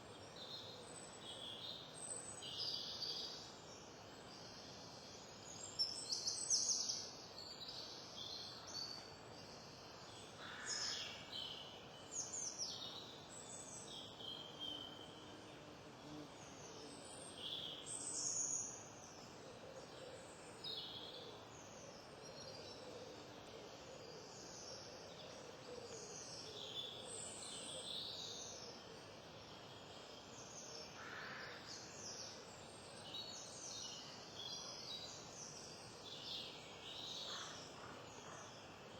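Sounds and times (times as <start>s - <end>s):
songbirds chirping: 0.0s - 38.9s
steady background hiss: 0.0s - 38.9s.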